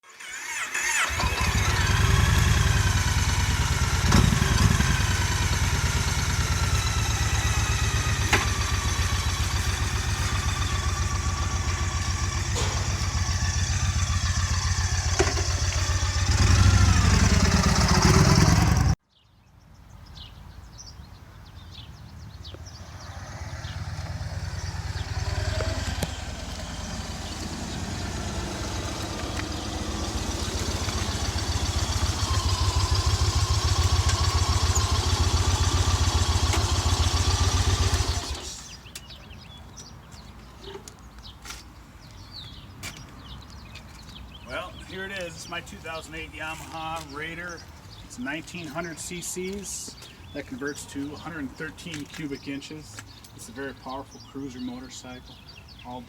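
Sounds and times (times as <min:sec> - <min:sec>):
motorcycle engine revving: 0:00.1 - 0:19.0, 0:22.4 - 0:38.9
quieter engine sound: 0:00.8 - 0:19.0, 0:21.5 - 0:39.5.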